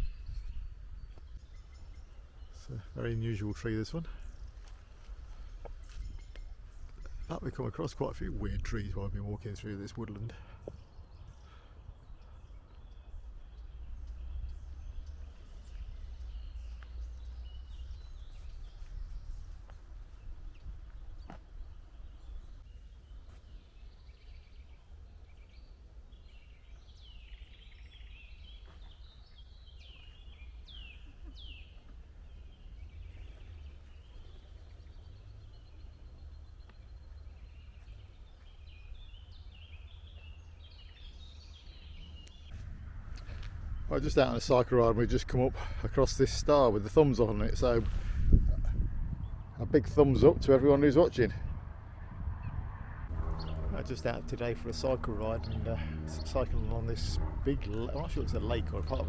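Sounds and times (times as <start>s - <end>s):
birds singing and calling: 0.0s - 51.7s, 52.3s - 59.0s
steady low rumble: 29.4s - 59.0s.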